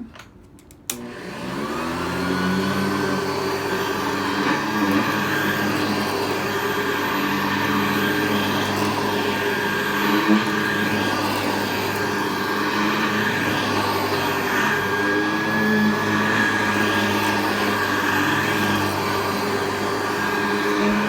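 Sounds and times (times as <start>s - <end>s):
vacuum cleaner switch click: 0.7s - 1.2s
vacuum cleaner motor running: 0.9s - 21.0s.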